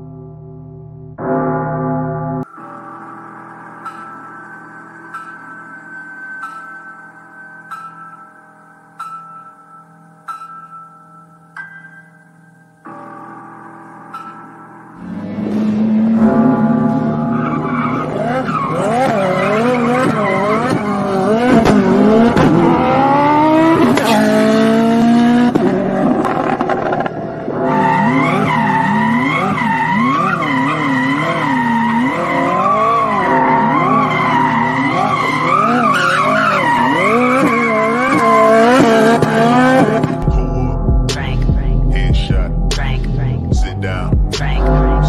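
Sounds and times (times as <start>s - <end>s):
car engine revving: 15.0s - 45.0s
tyres squealing: 17.3s - 21.6s, 27.7s - 39.0s.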